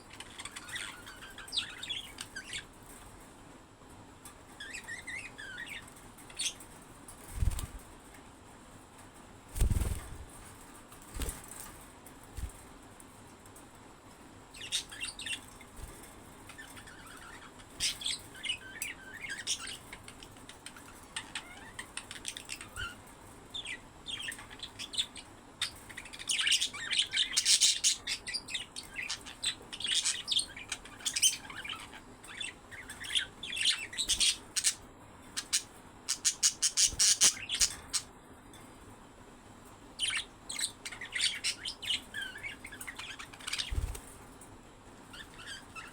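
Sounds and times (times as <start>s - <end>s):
budgerigars chirping: 0.1s - 2.7s, 14.6s - 15.5s, 16.5s - 23.0s, 23.6s - 34.8s, 35.4s - 38.1s, 40.0s - 44.0s, 45.2s - 45.9s.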